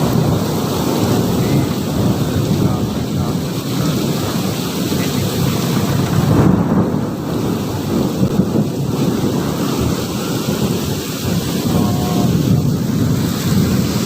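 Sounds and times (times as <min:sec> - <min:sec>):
heavy rain pouring: 0:00.0 - 0:14.0
low thunder rumble: 0:00.0 - 0:14.0.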